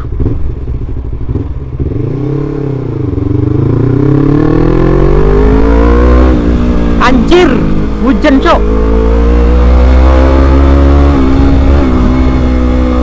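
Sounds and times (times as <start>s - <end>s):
motorcycle engine revving: 0.0s - 13.0s
wind rumble on microphone: 11.0s - 13.0s.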